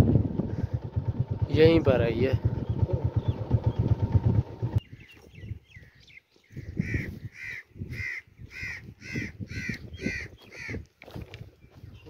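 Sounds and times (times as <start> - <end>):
bird calling in short calls: 4.9 - 10.8.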